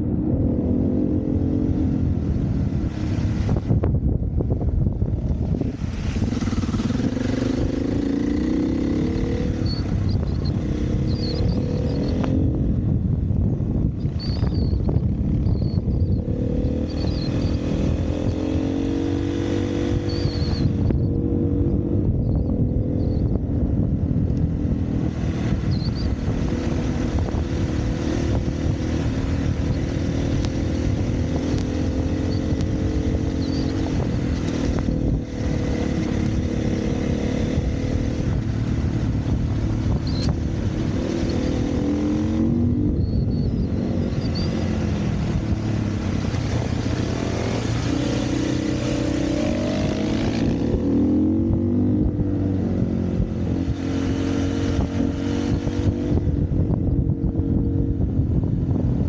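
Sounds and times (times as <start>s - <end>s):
dirt bike engine revving: 5.8s - 12.6s, 15.4s - 23.1s, 24.7s - 56.2s.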